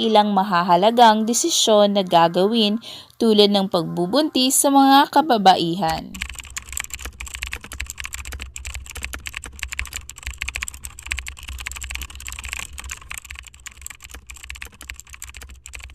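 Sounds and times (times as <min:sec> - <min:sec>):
keyboard typing: 0:05.8 - 0:15.9.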